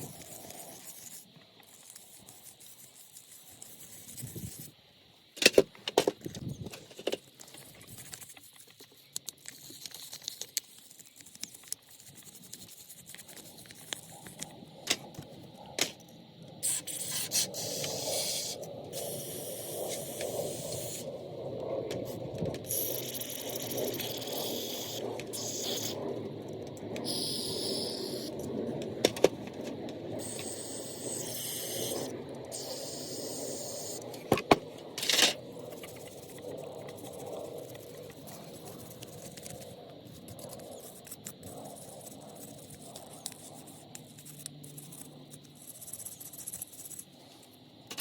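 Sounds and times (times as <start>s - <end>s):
hissing spray bursts: 27.1s - 28.3s.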